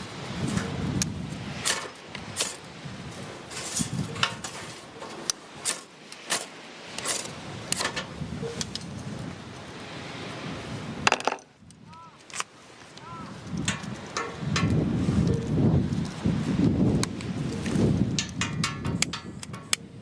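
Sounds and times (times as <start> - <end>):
objects knocking and clicking: 11.0 - 11.5.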